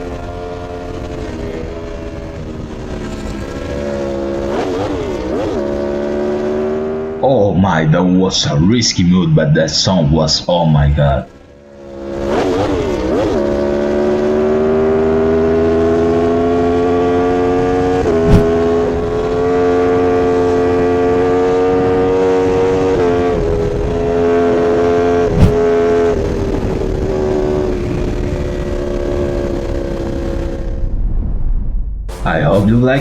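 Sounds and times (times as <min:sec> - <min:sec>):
motorcycle engine revving hard: 0:00.0 - 0:07.2, 0:11.7 - 0:30.8.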